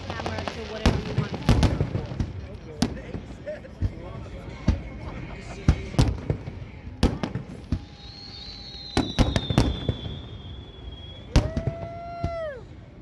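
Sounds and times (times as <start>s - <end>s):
fireworks bangs: 0.0s - 13.0s
firework whistle falling in pitch: 7.6s - 12.7s.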